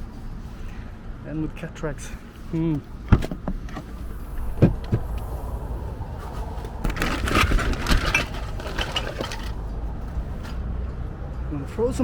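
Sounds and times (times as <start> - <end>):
hard objects clattering: 6.8 - 9.7.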